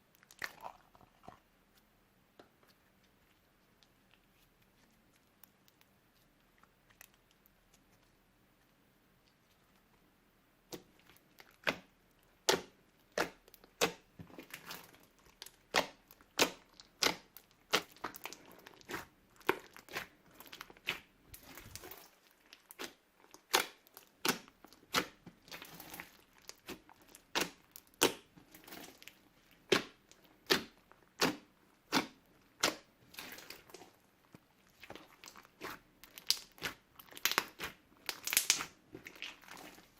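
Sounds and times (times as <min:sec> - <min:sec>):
hands kneading slime: 0:00.0 - 0:10.0, 0:10.6 - 0:39.9
slime air pops and crackles: 0:36.2 - 0:39.3.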